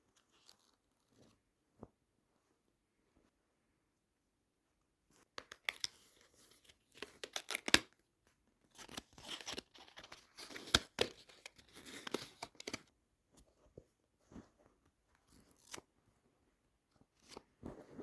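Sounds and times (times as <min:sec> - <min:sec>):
packaging tearing and crinkling: 0:06.9 - 0:07.9.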